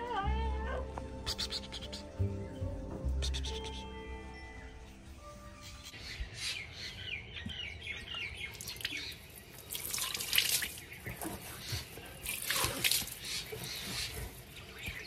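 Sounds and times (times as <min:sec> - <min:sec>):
bird chirping: 0:01.0 - 0:10.0
water splashing: 0:08.6 - 0:11.2, 0:12.2 - 0:13.6.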